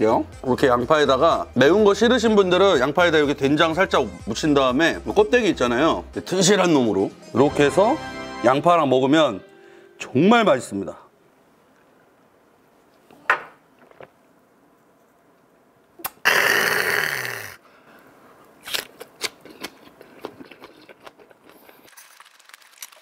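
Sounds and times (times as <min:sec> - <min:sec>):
person chewing crunchy food: 0:18.6 - 0:22.7.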